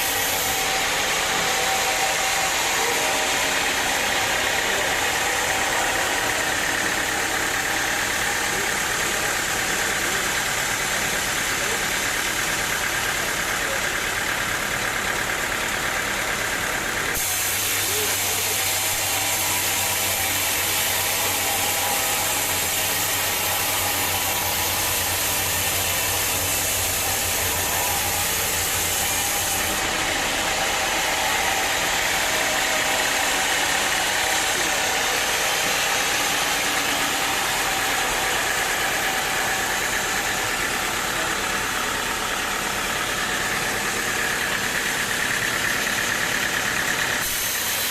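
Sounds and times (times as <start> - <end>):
sawmill machinery droning: 0.0 - 47.9.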